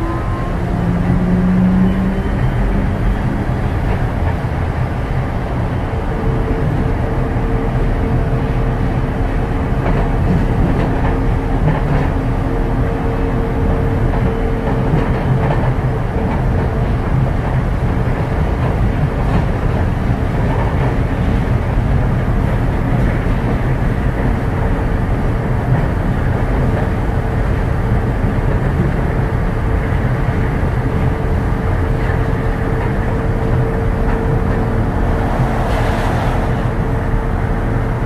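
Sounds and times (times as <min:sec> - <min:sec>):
train tyres rumbling on guideway: 0:00.0 - 0:38.0
steady tone: 0:33.1 - 0:38.0.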